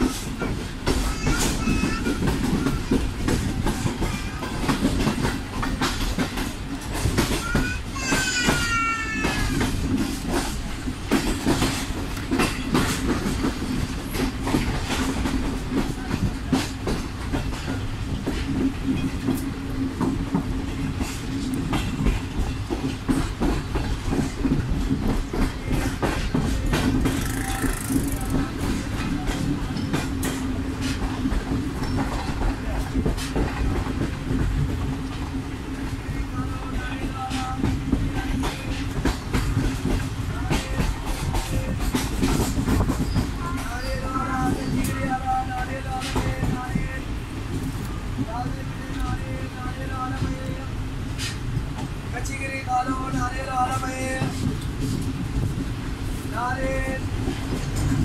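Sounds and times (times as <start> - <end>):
wheels clicking over rail joints: 0.0 - 36.0
train rumble: 0.0 - 58.0.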